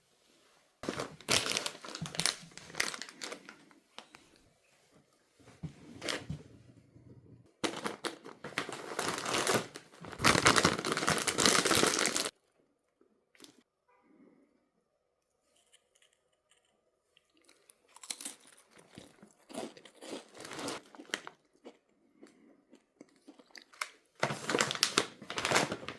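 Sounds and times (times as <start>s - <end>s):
plastic snack bag crinkling: 0.8s - 4.2s, 7.6s - 12.4s, 17.3s - 21.8s, 23.1s - 25.9s.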